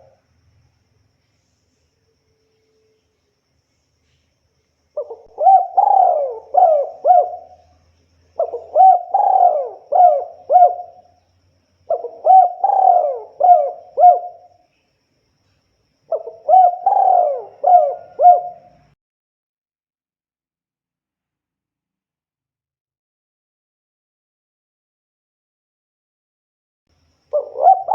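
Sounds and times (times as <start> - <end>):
dove cooing: 5.0 - 7.8, 8.4 - 11.1, 11.9 - 14.5, 16.1 - 19.0, 27.3 - 27.9.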